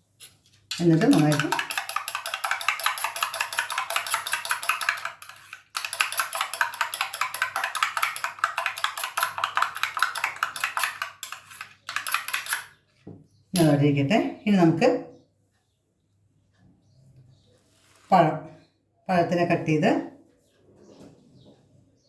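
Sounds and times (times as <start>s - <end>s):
whisk clicking against bowl: 0.2s - 12.7s.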